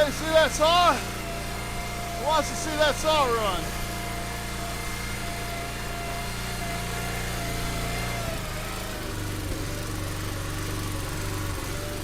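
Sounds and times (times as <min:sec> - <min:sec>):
chainsaw idling: 0:00.0 - 0:12.0.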